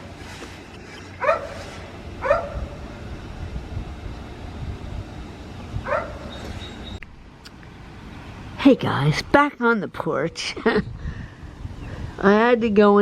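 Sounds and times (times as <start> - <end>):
dog barking: 1.2 - 1.6, 2.2 - 2.6, 5.8 - 6.3.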